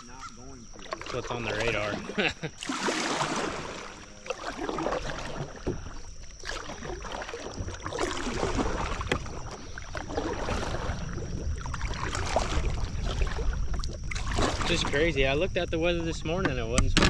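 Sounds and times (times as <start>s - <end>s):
water splashing around kayak: 0.0s - 17.0s
wind on microphone: 7.6s - 17.0s.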